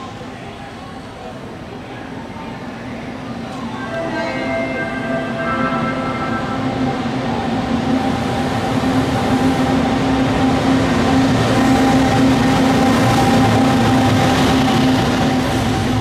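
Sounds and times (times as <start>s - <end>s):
train wheels rumbling: 3.5s - 16.0s.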